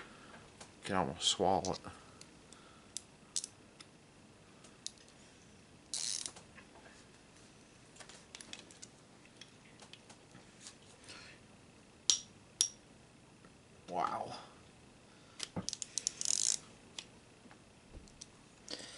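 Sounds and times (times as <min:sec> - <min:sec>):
hand ratchet clicking: 0:15.7 - 0:16.6.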